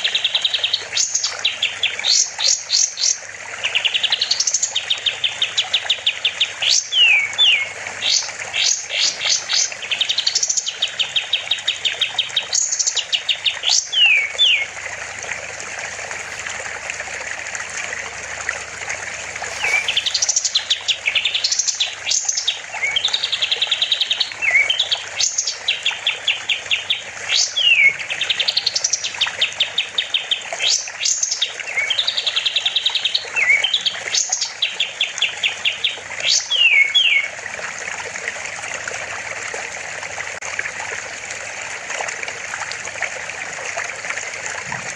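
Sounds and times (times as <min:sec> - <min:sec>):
songbird trilling and whistling: 0:06.6 - 0:11.4, 0:13.6 - 0:14.7, 0:19.4 - 0:25.6, 0:27.3 - 0:28.0, 0:36.2 - 0:37.3.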